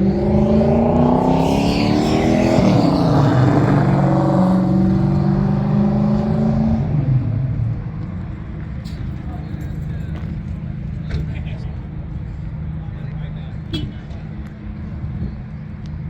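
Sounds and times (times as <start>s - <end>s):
car engine accelerating: 0.0s - 7.6s.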